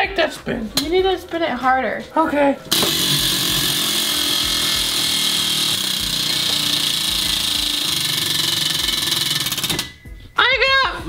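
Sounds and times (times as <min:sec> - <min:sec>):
prize wheel clicking: 0:02.7 - 0:10.0.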